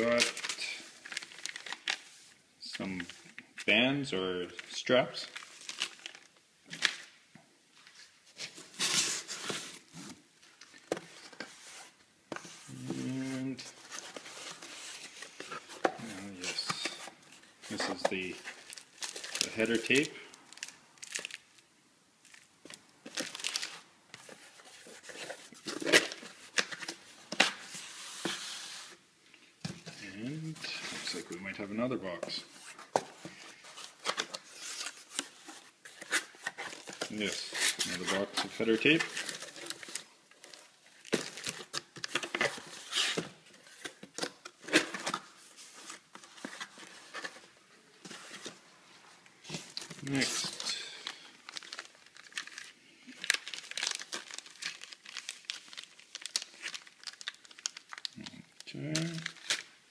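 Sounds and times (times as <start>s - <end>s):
packaging crinkling and tearing: 0.0s - 2.0s, 5.3s - 7.1s, 17.7s - 21.6s, 22.2s - 28.8s, 49.5s - 59.9s
packaging rustling and crinkling: 0.0s - 2.4s, 4.4s - 21.6s, 22.2s - 29.0s, 29.6s - 59.9s.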